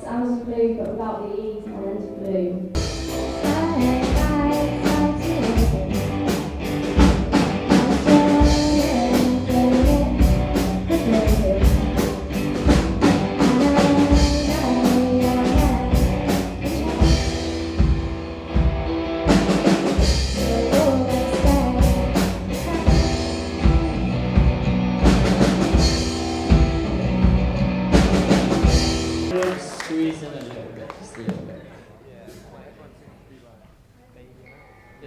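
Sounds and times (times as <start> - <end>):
electric guitar: 2.1 - 29.4
bass guitar: 2.8 - 29.4
drum kit beat: 2.8 - 29.4.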